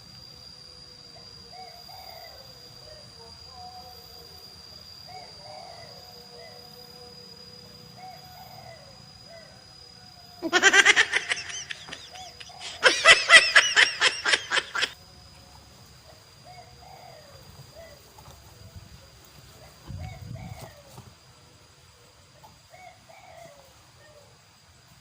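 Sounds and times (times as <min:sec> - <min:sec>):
distant bird calls: 0:10.4 - 0:15.0.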